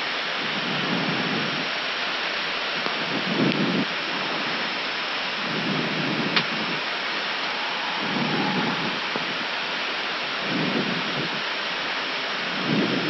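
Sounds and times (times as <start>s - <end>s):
hiss of airflow in cockpit: 0.0s - 13.0s
low rumble: 6.3s - 11.4s.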